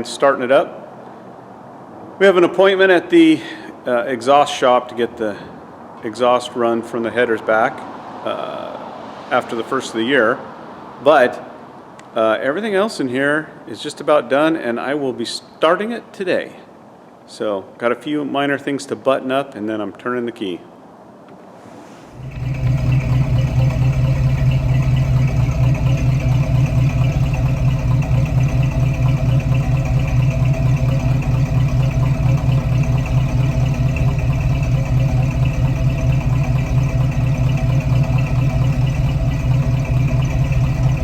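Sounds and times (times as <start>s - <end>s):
engine idling on open headers: 21.9s - 41.0s.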